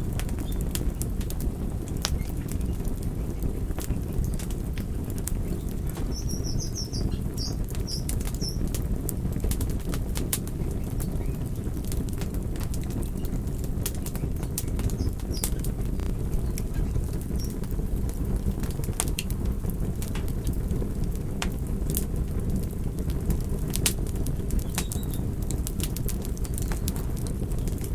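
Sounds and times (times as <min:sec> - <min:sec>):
burning wood crackling: 0:00.0 - 0:27.9
campfire flames rumbling: 0:00.0 - 0:27.9
high chirps: 0:06.0 - 0:08.6.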